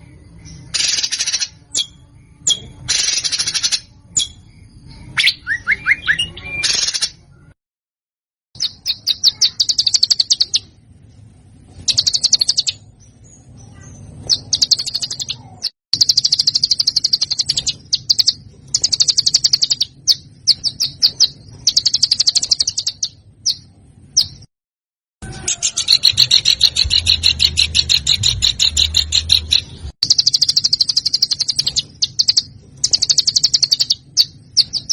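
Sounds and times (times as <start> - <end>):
songbird trilling: 8.6 - 10.7, 11.9 - 12.9, 13.6 - 24.4, 25.4 - 34.9.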